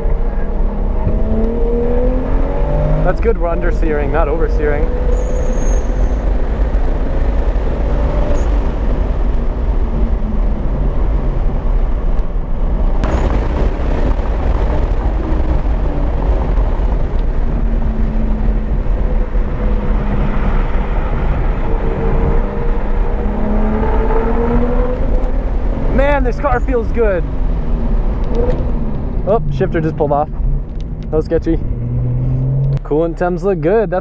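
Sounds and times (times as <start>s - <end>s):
car engine revving: 0.0s - 34.0s
road and wind rumble: 0.0s - 34.0s
sharp crack: 13.0s - 17.5s.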